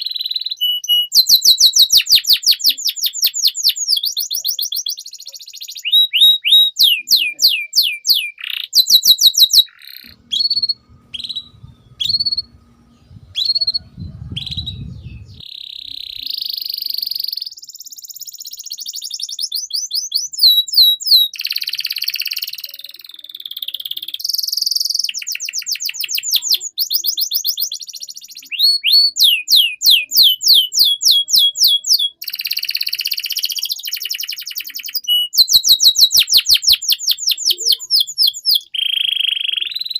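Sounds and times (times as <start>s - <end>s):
canary singing trills: 0.0s - 39.9s
low rumble: 10.2s - 15.4s.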